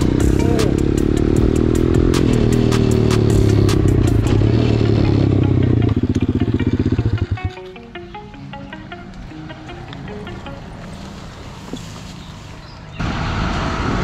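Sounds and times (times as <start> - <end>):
motorbike engine running: 0.0 - 7.7.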